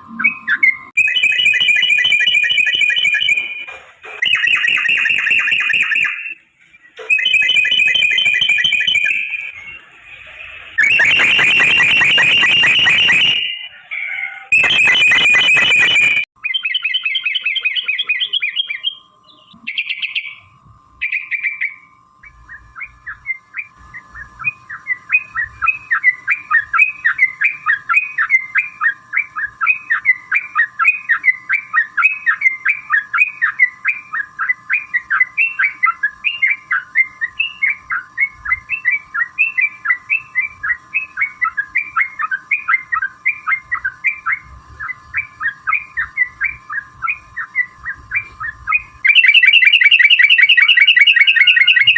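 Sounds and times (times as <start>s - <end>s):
harsh chattering bird call: 0.2s - 38.2s, 38.8s - 51.9s
fast run of short bird notes: 0.2s - 51.9s
bird calling: 10.8s - 51.9s.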